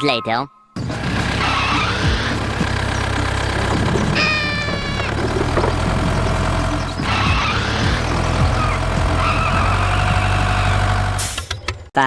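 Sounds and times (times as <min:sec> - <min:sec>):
engine running: 0:00.8 - 0:11.5.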